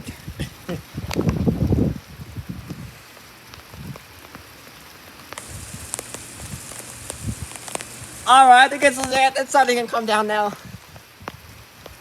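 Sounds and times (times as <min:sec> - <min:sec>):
rain falling: 0:03.0 - 0:10.3
sharp ticks of drops: 0:05.4 - 0:09.2.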